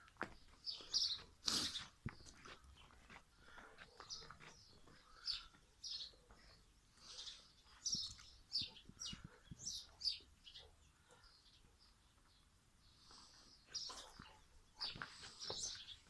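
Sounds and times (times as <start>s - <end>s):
bird chirping: 0.3s - 16.0s.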